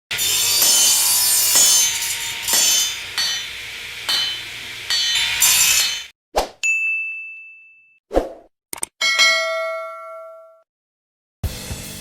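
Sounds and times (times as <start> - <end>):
loud metallic clanks: 0.6 - 6.1
ringing ding: 6.6 - 8.0, 9.0 - 10.7.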